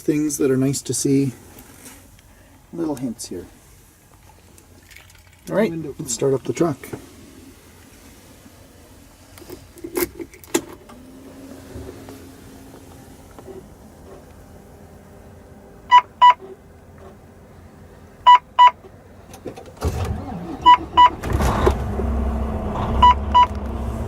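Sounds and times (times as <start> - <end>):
diesel engine starting and idling: 0.0 - 24.0
dashboard warning chime beeping: 15.9 - 16.4, 18.2 - 18.8, 20.4 - 21.2, 23.0 - 23.6.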